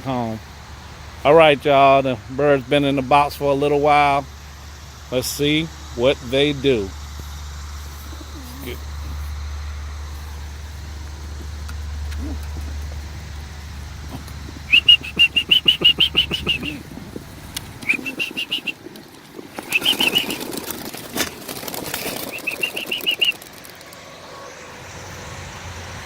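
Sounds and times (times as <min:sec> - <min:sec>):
pigeon wings flapping: 0:10.1 - 0:24.6
high-pitched squeaking pulses: 0:14.1 - 0:16.8, 0:17.8 - 0:18.8, 0:19.6 - 0:20.5.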